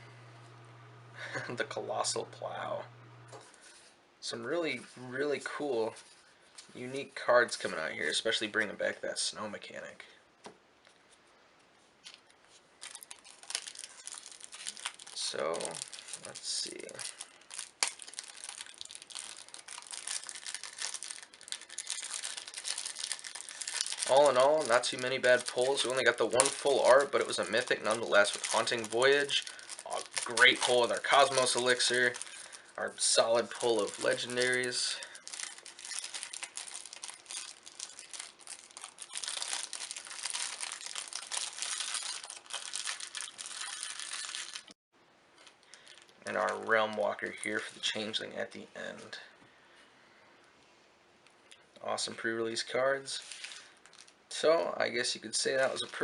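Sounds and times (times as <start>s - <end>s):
cards and wrappers crinkling: 12.0s - 44.8s, 45.4s - 48.2s, 53.0s - 54.2s, 55.4s - 56.0s.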